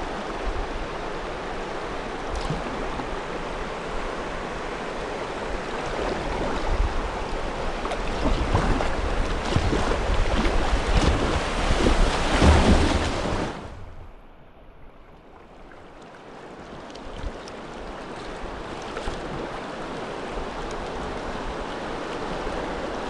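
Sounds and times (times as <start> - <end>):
river water rushing: 0.0 - 14.1, 15.6 - 23.0
wind buffeting microphone: 2.3 - 14.2.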